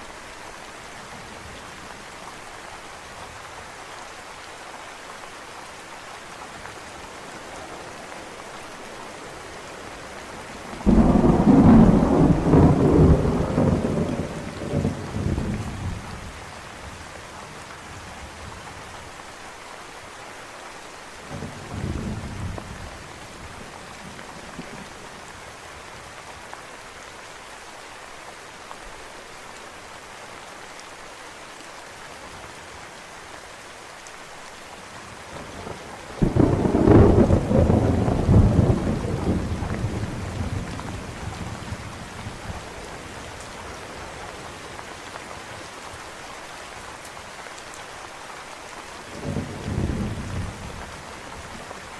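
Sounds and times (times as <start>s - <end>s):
steady rain: 0.0s - 51.9s
thunder rolling: 10.9s - 15.0s, 36.2s - 40.5s
loud close thunderclap: 10.9s - 15.4s, 36.2s - 40.7s.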